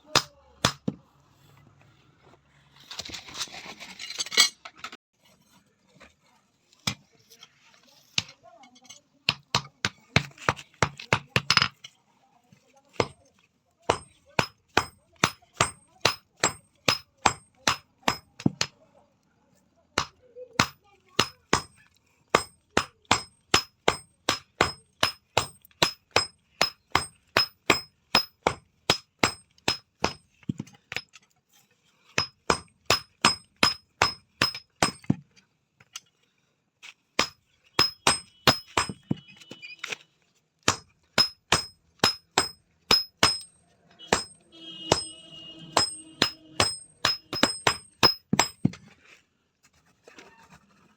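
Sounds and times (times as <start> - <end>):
hammer striking steel on anvil: 13.9 - 18.6, 22.4 - 30.2, 32.2 - 35.1, 37.2 - 39.2, 40.7 - 48.7.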